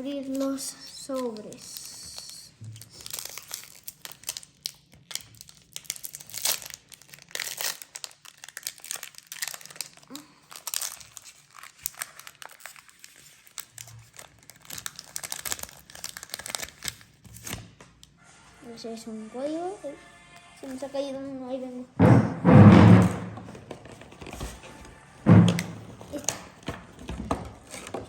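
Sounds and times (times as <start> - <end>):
foil wrappers crinkling: 0.0 - 17.7, 23.6 - 28.0.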